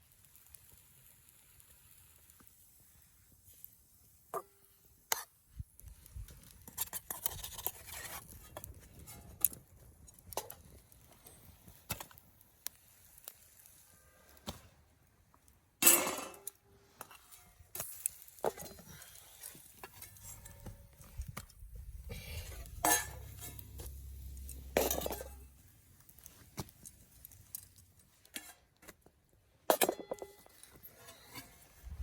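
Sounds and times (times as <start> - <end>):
metal cookware clinking and knocking: 22.7 - 24.0, 24.6 - 25.4, 29.7 - 30.5.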